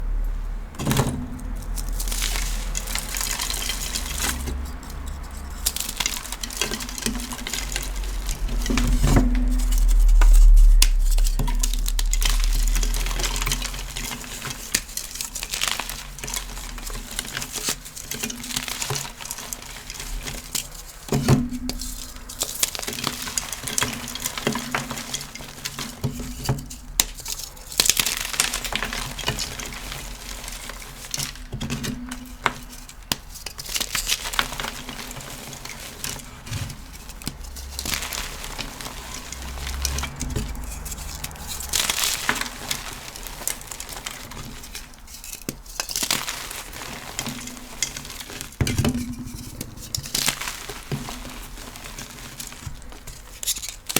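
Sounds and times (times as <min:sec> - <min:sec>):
low rumble: 0:00.0 - 0:13.8, 0:36.4 - 0:42.2
chalk blocks crushed and crumbling: 0:00.8 - 0:53.9.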